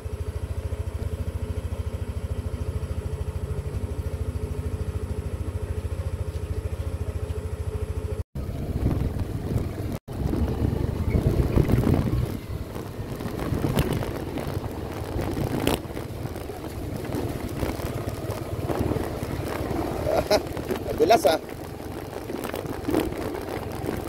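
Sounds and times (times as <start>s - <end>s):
motorcycle engine idling: 0.0s - 24.0s
motorcycle riding on dirt track: 0.0s - 24.0s
wind noise on microphone: 8.5s - 21.4s.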